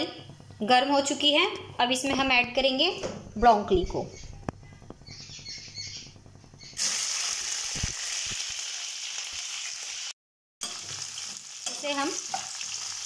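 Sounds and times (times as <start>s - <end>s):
low hum: 0.0s - 6.8s
oil sizzling: 6.1s - 13.0s.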